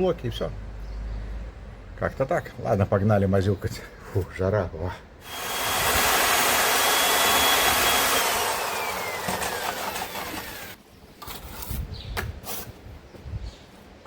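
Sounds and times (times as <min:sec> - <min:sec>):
power tool motor whining: 0:05.2 - 0:10.8.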